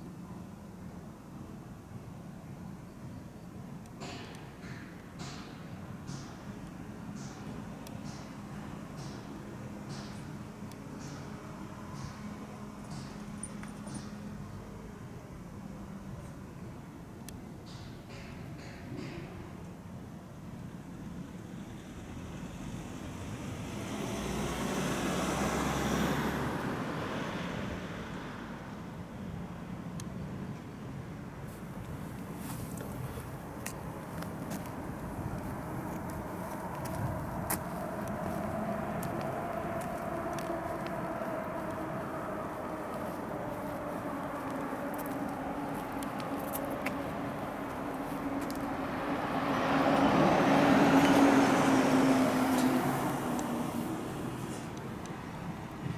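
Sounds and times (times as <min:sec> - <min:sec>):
engine and traffic rumble: 0:00.0 - 0:55.9
jet airliner passing overhead: 0:31.7 - 0:55.7
high engine whine sliding down: 0:33.3 - 0:55.7.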